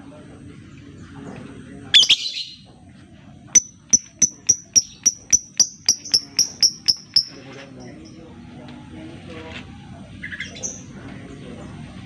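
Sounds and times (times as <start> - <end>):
bird ticking call: 2.0 - 2.4, 3.6 - 7.4.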